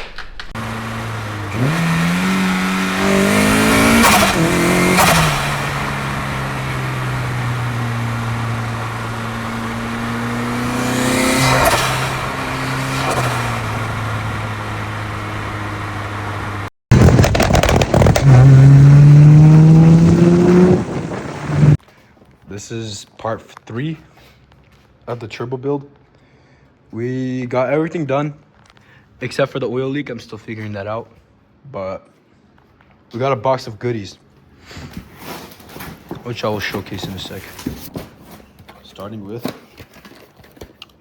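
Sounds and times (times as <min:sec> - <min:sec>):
sharp exhaust cracks: 0:00.0 - 0:21.8
car engine revving: 0:00.1 - 0:21.8.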